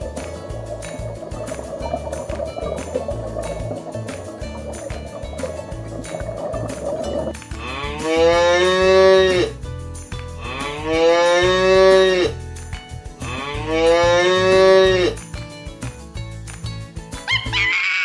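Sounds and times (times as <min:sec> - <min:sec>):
cow mooing: 0:07.6 - 0:09.5, 0:10.6 - 0:12.4, 0:13.2 - 0:15.2.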